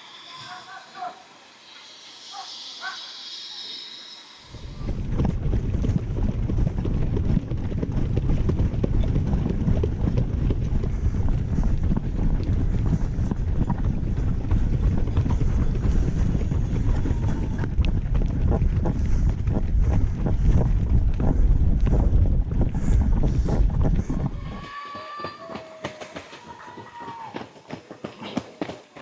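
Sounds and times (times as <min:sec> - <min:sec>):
wind buffeting microphone: 0:04.5 - 0:24.7.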